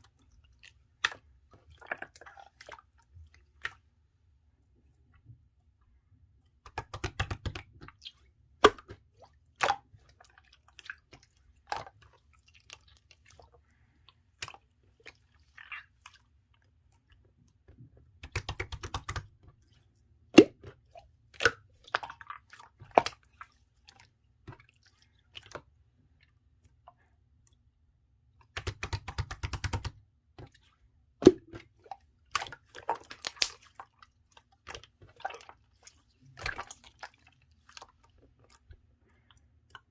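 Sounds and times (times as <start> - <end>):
slime squished by hand: 31.2 - 38.5.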